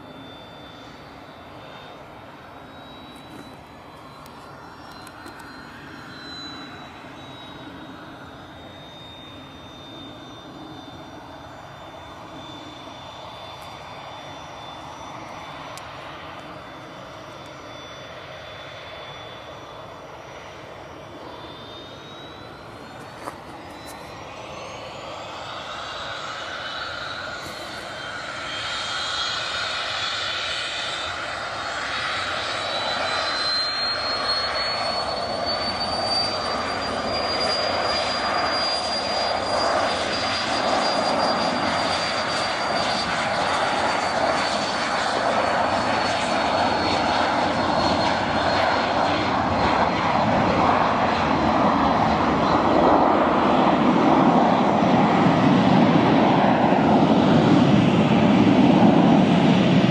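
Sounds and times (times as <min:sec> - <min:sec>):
jet engine high whine: 0:00.0 - 0:59.9
jet noise: 0:00.0 - 0:59.9
deep jet rumble: 0:43.2 - 0:59.9.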